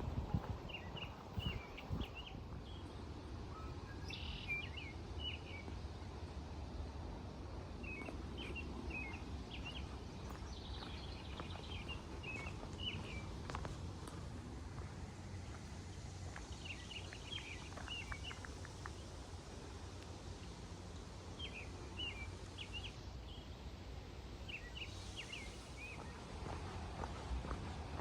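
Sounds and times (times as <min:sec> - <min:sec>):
low outdoor background hum: 0:00.0 - 0:28.0
songbird chirping: 0:00.4 - 0:05.8, 0:07.8 - 0:13.6, 0:16.2 - 0:19.1, 0:24.4 - 0:27.6.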